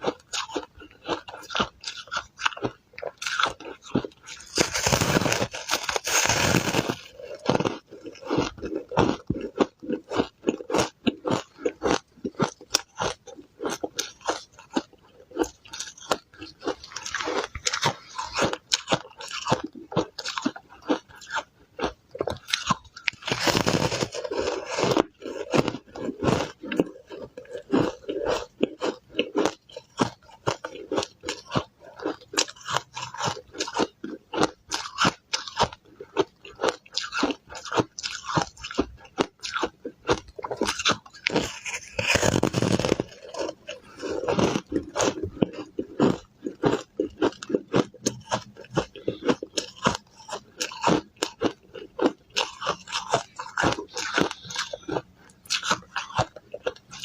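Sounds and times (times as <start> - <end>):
ice being crunched by chewing: 0.0 - 57.0.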